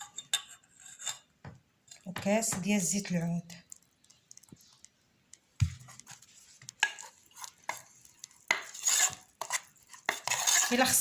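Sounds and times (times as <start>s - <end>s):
utensils knocking and scraping a pot: 0.0s - 3.2s, 5.6s - 11.0s.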